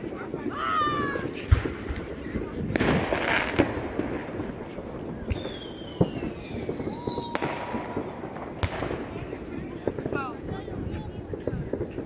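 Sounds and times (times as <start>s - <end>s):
fireworks bangs and crackles: 0.0s - 12.0s
falling firework whistle: 5.3s - 8.1s.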